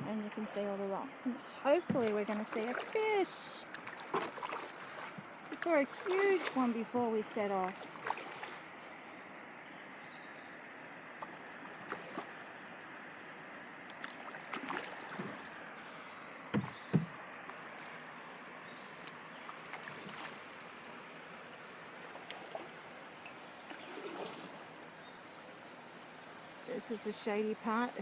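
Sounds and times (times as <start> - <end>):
water dripping from paddle: 0.0 - 9.0, 11.1 - 12.9, 13.8 - 28.0
water rushing around canoe hull: 0.0 - 28.0
paddle knocks: 1.7 - 6.8, 16.5 - 17.6.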